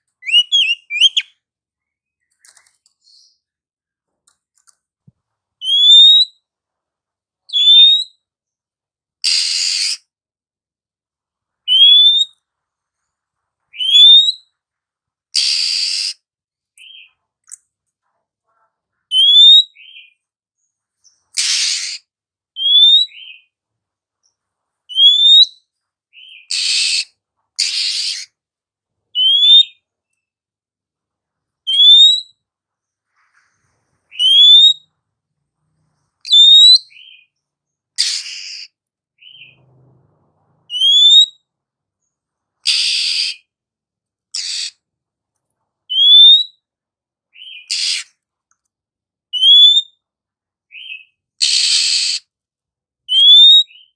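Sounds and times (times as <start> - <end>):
bird rising whistle call: 0.2 - 1.3
harsh raspy bird calls: 0.2 - 1.3, 21.4 - 23.5, 26.2 - 28.4, 38.0 - 39.6, 42.6 - 43.5, 44.3 - 44.8, 47.4 - 48.2, 50.8 - 52.3.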